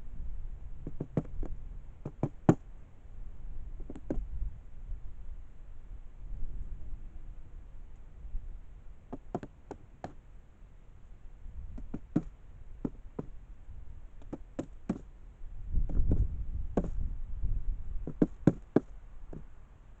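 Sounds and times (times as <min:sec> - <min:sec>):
sharp knocks and taps: 0:00.8 - 0:02.6, 0:09.1 - 0:10.2, 0:11.7 - 0:13.3, 0:14.2 - 0:15.1, 0:16.8 - 0:17.0, 0:18.0 - 0:19.5.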